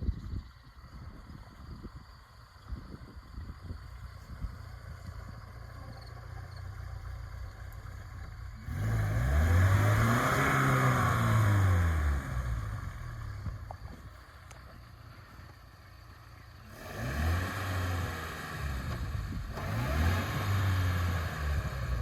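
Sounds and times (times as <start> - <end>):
car engine revving: 5.3 - 13.8, 16.5 - 22.0.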